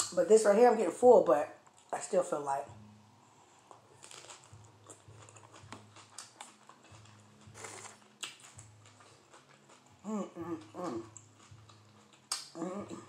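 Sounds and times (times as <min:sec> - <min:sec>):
crunchy lettuce chewing: 0:03.5 - 0:13.0
person humming: 0:10.0 - 0:11.1, 0:12.6 - 0:13.0.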